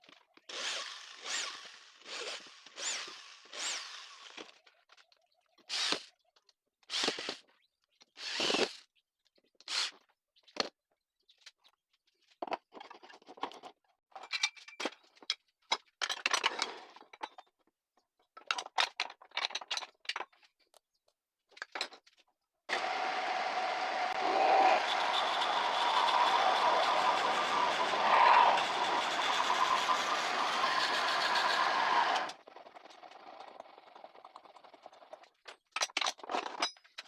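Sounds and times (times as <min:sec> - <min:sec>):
wood and tools scraping and knocking: 0:21.6 - 0:32.4
lathe electric motor humming: 0:22.7 - 0:32.4.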